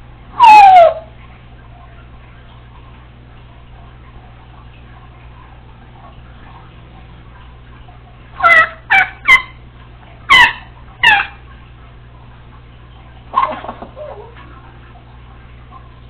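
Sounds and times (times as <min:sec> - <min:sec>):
parrot harsh calls: 0:00.4 - 0:01.1, 0:08.4 - 0:09.6, 0:10.3 - 0:11.4.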